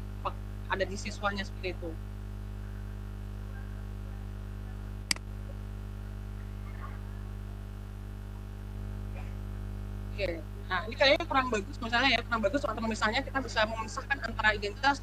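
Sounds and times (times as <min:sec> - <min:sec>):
electrical mains hum: 0:00.0 - 0:15.0
sharp click: 0:05.1 - 0:05.3.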